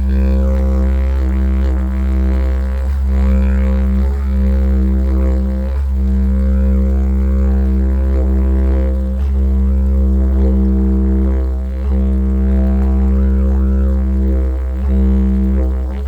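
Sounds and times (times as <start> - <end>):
didgeridoo low drone: 0.0 - 16.0.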